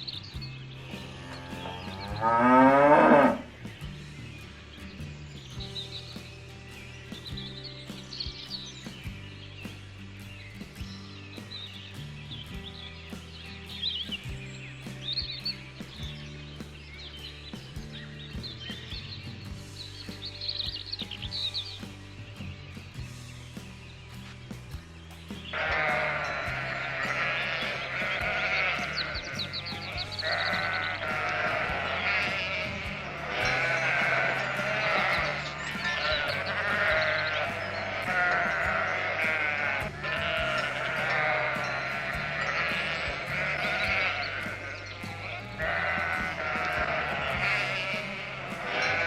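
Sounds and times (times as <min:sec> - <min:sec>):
music with low bass line: 0:00.0 - 0:49.0
goats bleating: 0:00.9 - 0:03.5, 0:25.6 - 0:49.0.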